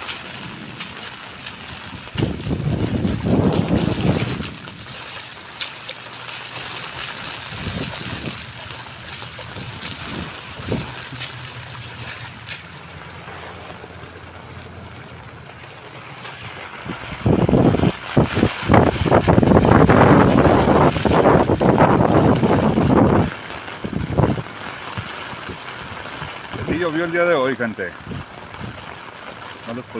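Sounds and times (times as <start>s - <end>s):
rain drop ticks: 0.0s - 29.9s
rain hiss: 0.0s - 29.9s
wind buffeting microphone: 0.2s - 5.4s, 6.9s - 27.0s, 27.9s - 29.0s.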